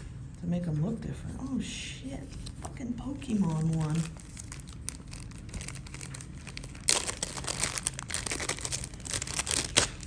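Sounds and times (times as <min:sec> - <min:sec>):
plastic packaging crinkling: 0:03.2 - 0:10.0.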